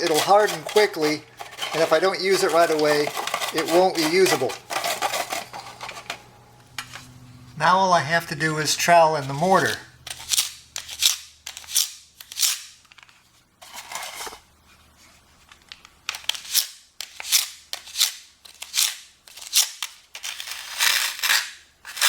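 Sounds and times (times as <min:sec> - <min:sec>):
trowel scraping mortar: 0:00.0 - 0:06.2.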